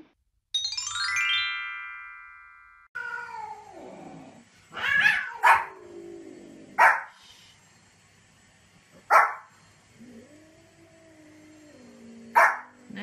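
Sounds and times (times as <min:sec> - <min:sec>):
ringing chime: 0:00.6 - 0:02.9
cat meowing: 0:03.0 - 0:03.8, 0:04.7 - 0:05.7
small dog barking: 0:04.8 - 0:05.8, 0:06.8 - 0:07.1, 0:09.1 - 0:09.5, 0:12.3 - 0:12.8.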